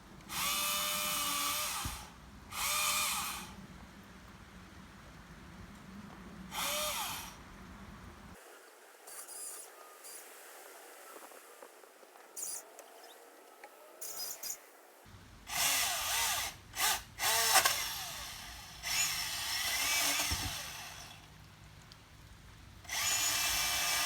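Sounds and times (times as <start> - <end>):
chainsaw cutting branches: 15.5 - 21.2.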